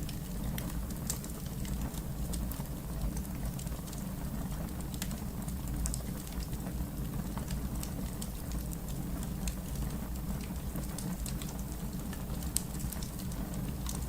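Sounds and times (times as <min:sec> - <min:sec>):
fire crackling: 0:00.0 - 0:14.0.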